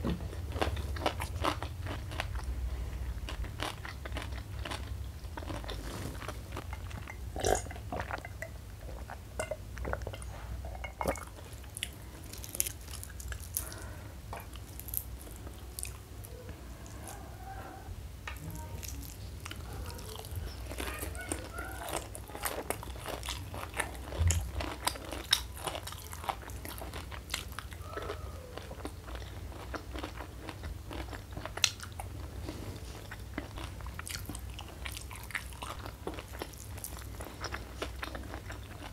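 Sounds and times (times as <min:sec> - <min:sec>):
crunchy chewing and biting: 0:00.2 - 0:08.2, 0:18.8 - 0:38.9.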